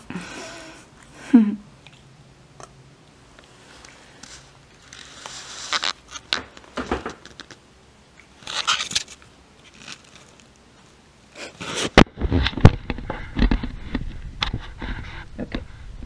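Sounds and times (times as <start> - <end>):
fur rubbing on microphone: 4.2 - 6.1.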